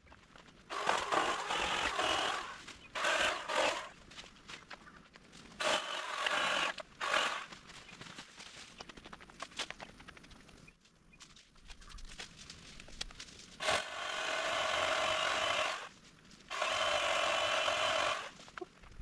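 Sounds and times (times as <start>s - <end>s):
branches crackling: 0.2s - 9.6s
saw cutting tree limb: 0.7s - 4.0s, 5.6s - 7.6s, 13.6s - 15.9s, 16.5s - 18.4s.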